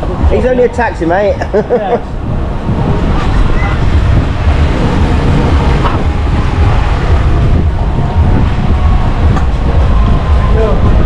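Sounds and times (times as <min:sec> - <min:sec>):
car engine idling: 0:02.0 - 0:11.0.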